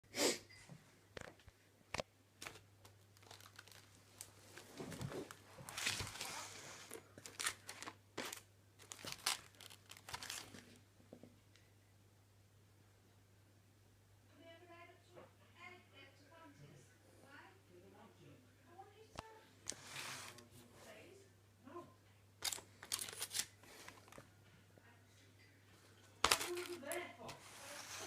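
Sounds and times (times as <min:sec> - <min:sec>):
crinkling and rustling: 0:01.1 - 0:11.2, 0:19.2 - 0:21.0, 0:22.4 - 0:24.4, 0:25.8 - 0:28.0.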